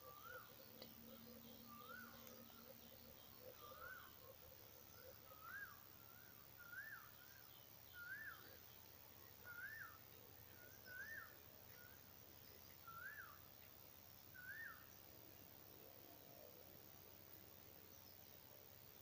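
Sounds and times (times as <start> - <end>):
bird calling: 0.0 - 8.6
rural background noise: 0.0 - 19.0.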